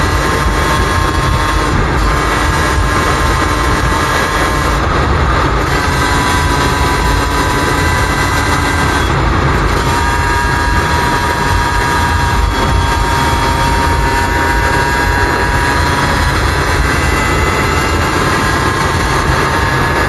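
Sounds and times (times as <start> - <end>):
heavy low rumble: 0.0 - 20.0
two-stroke dirt bike engine: 0.0 - 20.0.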